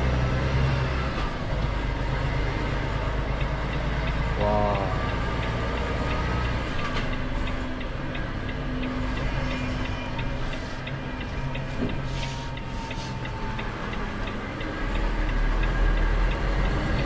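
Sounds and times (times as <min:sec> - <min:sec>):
truck diesel engine rumbling: 0:00.0 - 0:17.0
regular ticking: 0:02.4 - 0:17.0.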